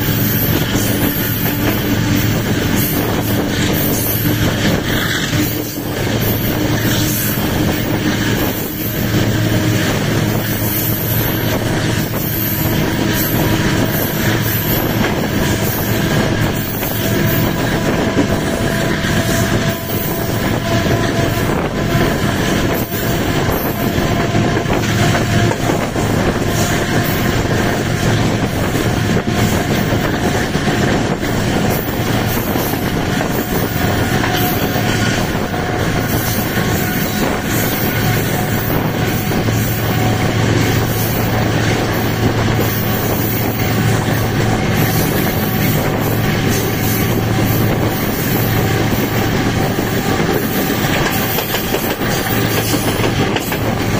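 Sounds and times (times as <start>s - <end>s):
train wheels rolling and rattling: 0.0s - 53.9s.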